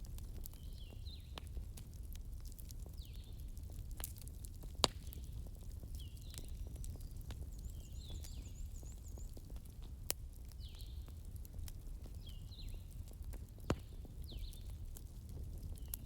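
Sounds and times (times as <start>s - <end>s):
fire crackling: 0.0s - 16.0s
wood fire rumbling: 0.0s - 16.0s
sharp fire pops: 4.0s - 7.4s, 11.6s - 16.0s.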